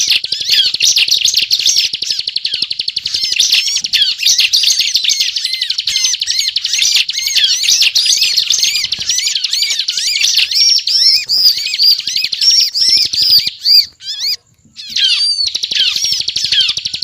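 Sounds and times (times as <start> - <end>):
bird singing rapid trills: 0.0 - 17.0.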